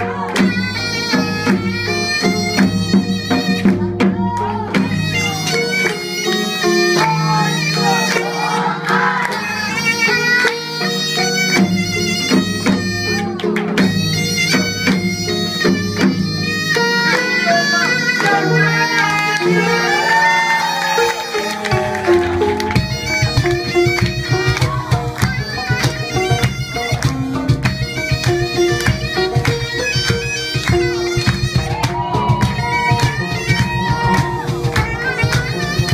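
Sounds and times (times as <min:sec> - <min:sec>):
reed wind instrument melody: 0:00.0 - 0:35.9
percussion strokes: 0:00.2 - 0:35.9.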